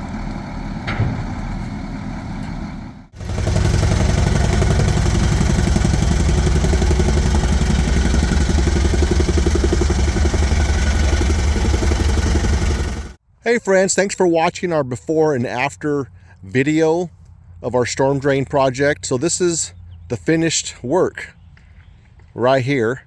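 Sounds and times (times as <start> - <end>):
motor engine running: 0.0 - 13.2.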